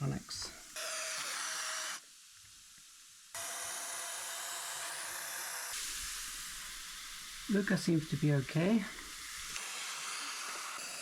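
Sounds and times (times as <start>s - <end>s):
aerosol spray hissing: 5.2s - 11.0s.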